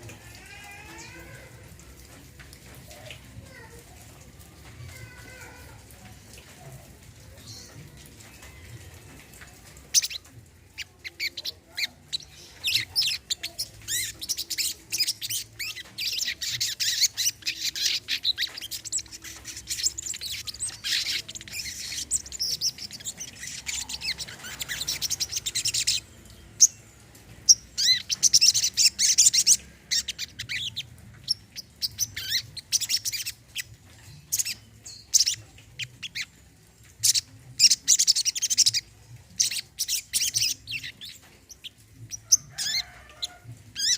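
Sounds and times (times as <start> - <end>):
bird twittering song: 9.8 - 43.9.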